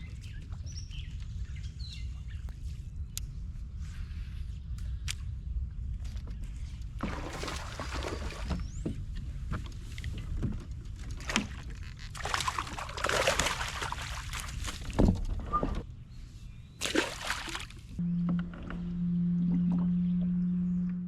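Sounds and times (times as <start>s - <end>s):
water sloshing and splashing: 7.0s - 15.8s, 16.8s - 18.8s
low rumble: 17.9s - 21.0s.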